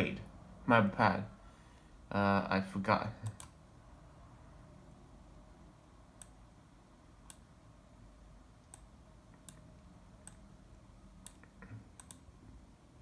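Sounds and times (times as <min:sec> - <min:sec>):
faint room hiss: 0:00.0 - 0:13.0
computer mouse clicks: 0:03.2 - 0:03.6, 0:06.2 - 0:06.4, 0:08.6 - 0:10.5, 0:11.2 - 0:12.3.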